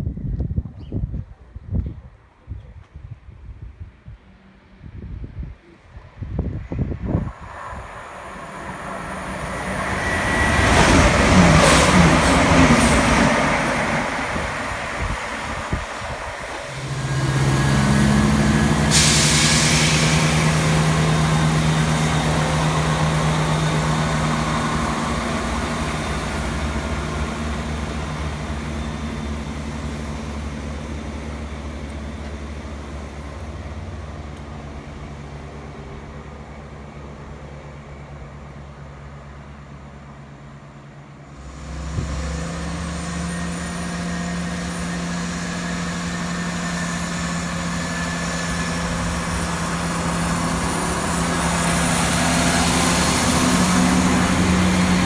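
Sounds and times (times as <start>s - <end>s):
train rumble with squealing: 5.9s - 55.0s
air hiss: 7.0s - 27.4s
diesel engine running: 7.1s - 35.0s, 41.3s - 55.0s.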